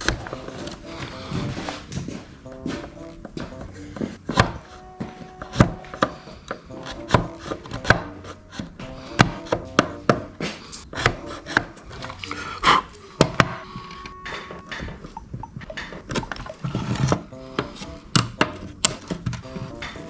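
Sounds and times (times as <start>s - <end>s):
faint background music: 0.0s - 20.0s.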